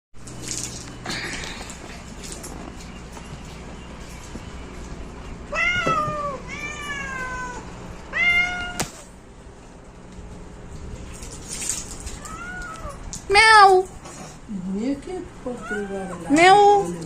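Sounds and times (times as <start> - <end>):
cat meowing: 5.5 - 9.0, 12.1 - 13.1, 15.5 - 16.9.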